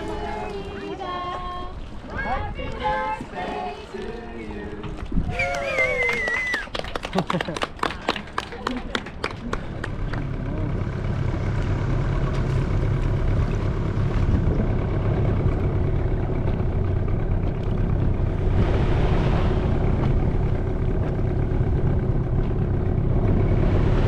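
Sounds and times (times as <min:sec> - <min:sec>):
outboard motor running: 0:09.1 - 0:24.0.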